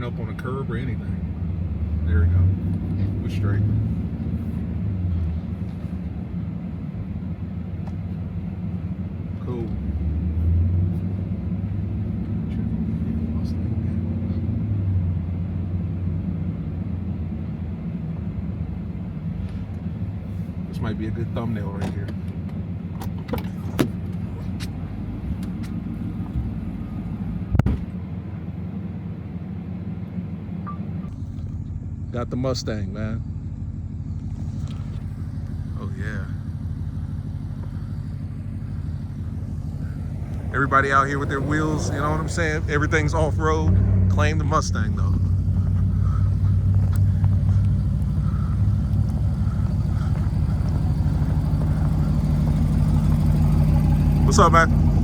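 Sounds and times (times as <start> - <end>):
truck engine running: 0.0 - 55.0.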